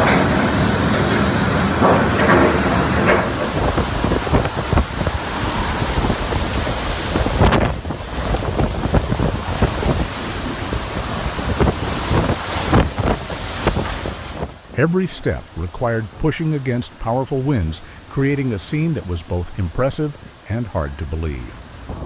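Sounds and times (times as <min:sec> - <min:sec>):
strong wind buffeting microphone: 0:02.9 - 0:16.3, 0:21.6 - 0:22.0.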